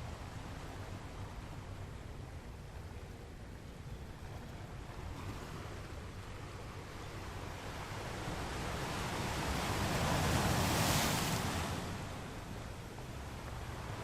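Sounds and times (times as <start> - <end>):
ocean waves breaking on beach: 4.2 - 14.0.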